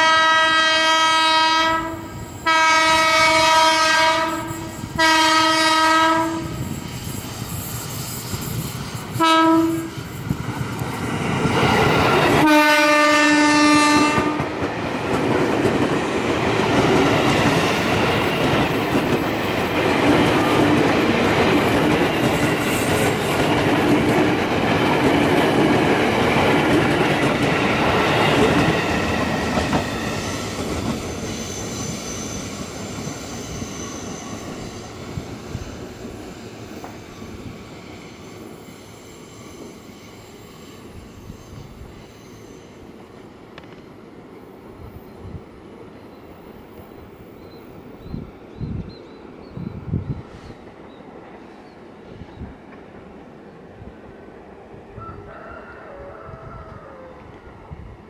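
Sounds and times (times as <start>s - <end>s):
train horn blasts: 0.0s - 6.7s, 9.1s - 10.1s, 12.4s - 14.6s
train wheels rumbling on rails: 1.0s - 55.0s.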